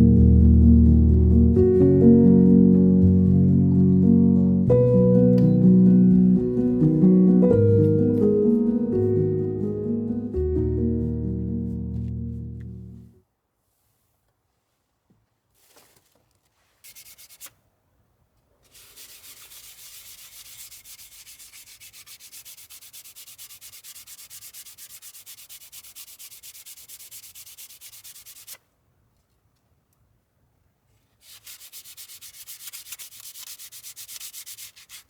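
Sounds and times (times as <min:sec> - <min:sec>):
sandpaper rubbing on wood: 0:16.7 - 0:17.5, 0:18.7 - 0:28.6, 0:31.2 - 0:35.0.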